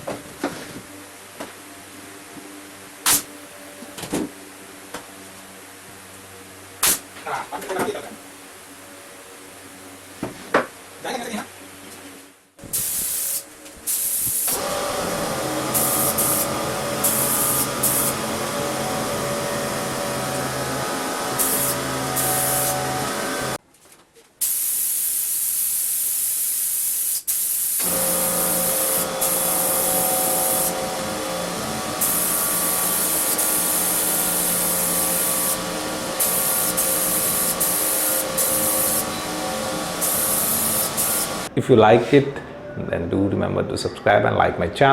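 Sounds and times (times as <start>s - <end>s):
power tool hissing over motor hum: 12.8s - 23.6s, 27.6s - 41.5s.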